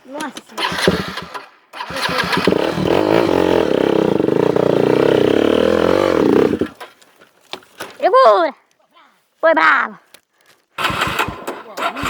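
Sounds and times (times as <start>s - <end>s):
dirt bike engine revving: 0.6s - 6.9s, 10.8s - 12.0s.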